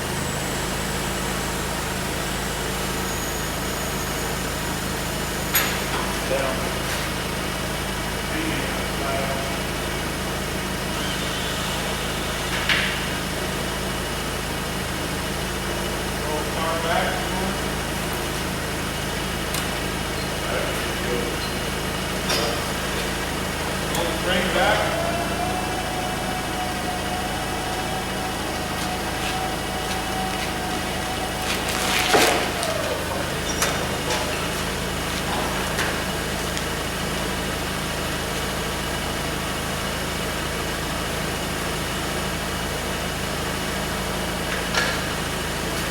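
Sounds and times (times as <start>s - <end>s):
low mechanical hum: 0.0s - 45.9s
motor whining: 9.4s - 14.8s, 17.1s - 37.7s.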